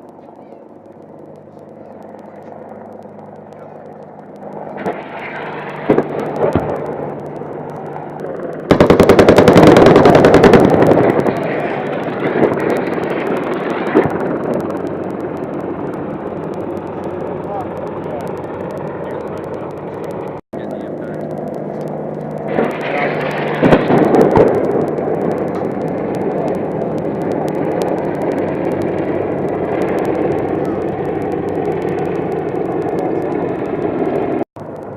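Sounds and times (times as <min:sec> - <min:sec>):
helicopter noise: 0:00.0 - 0:34.9
rapid gunfire burst: 0:03.1 - 0:34.4
loud rush with sharp bangs: 0:04.6 - 0:07.7, 0:08.4 - 0:17.8, 0:22.4 - 0:34.5.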